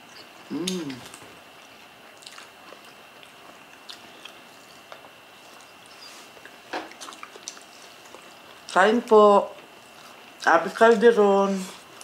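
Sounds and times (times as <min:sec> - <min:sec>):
soft chewing: 0:00.0 - 0:08.8, 0:09.5 - 0:12.0
small wet mouth clicks: 0:00.5 - 0:01.2.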